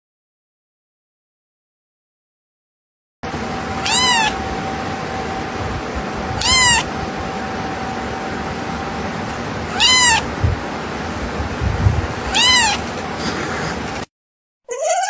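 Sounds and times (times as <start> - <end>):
cat meowing: 3.8 - 4.4, 6.4 - 6.9, 9.7 - 10.3, 12.3 - 12.9, 14.7 - 15.0.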